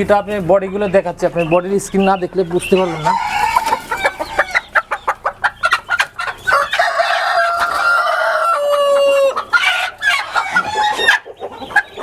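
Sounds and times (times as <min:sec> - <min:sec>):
chickens clucking: 0:00.0 - 0:12.0
rooster crowing: 0:02.7 - 0:04.7, 0:06.5 - 0:11.1.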